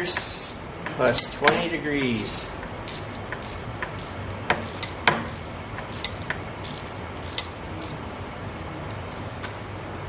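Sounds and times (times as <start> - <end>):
hand tools clicking on metal: 0.0 - 8.0
steady low hum: 0.0 - 10.0.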